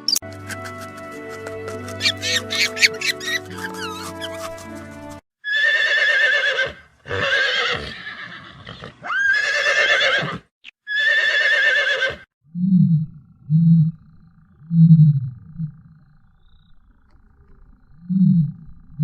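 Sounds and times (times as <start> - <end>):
horse whinnying: 5.4 - 12.3.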